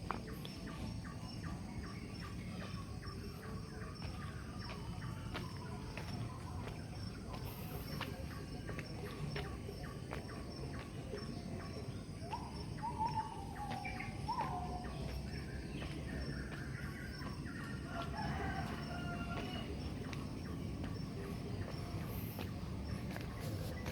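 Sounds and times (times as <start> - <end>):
rural ambience: 0.0 - 23.9
rooster crowing: 17.8 - 20.0.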